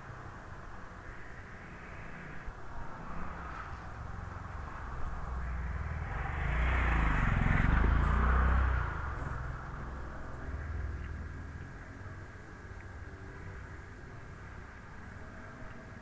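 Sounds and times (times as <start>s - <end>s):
motor vehicle passing: 3.4s - 11.5s.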